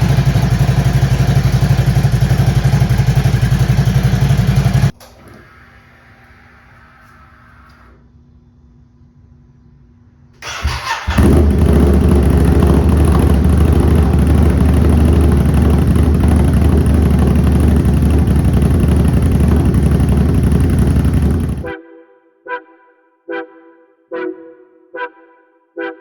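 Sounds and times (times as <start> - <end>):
motorcycle engine loud idle: 0.0 - 4.9, 10.4 - 21.7
motorcycle engine cranking and starting: 0.0 - 6.0, 10.4 - 21.7.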